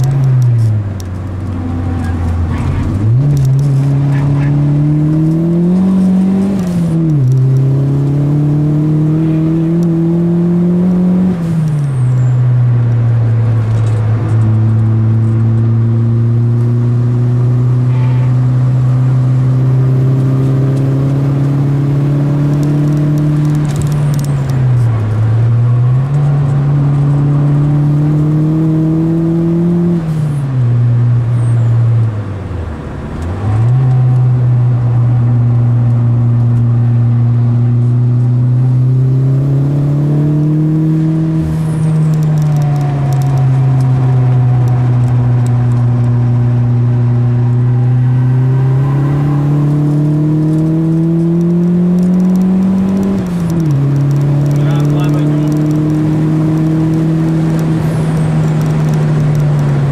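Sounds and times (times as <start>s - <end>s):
car engine under load: 0.0s - 59.9s.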